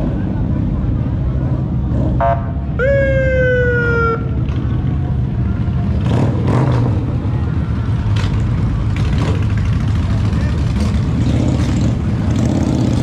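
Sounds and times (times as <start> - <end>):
motorcycle engines idling: 3.1 - 13.0.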